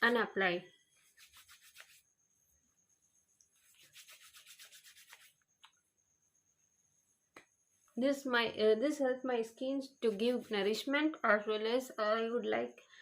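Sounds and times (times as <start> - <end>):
hands rubbing oil on skin: 1.0 - 2.1, 3.5 - 5.5.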